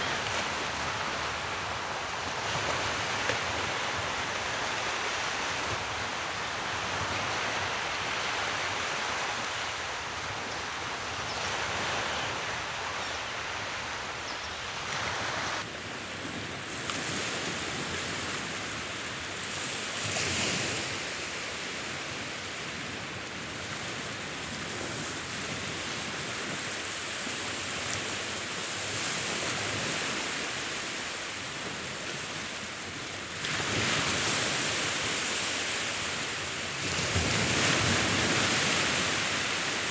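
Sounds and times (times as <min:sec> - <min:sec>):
sea waves surging: 0:14.8 - 0:39.9.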